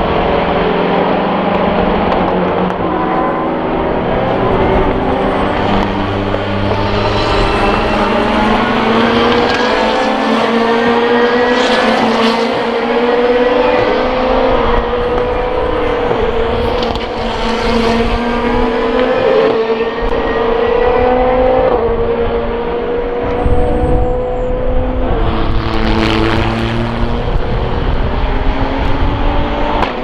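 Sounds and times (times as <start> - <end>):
cars rushing past: 0.0 - 30.0
race car engines accelerating: 0.0 - 30.0.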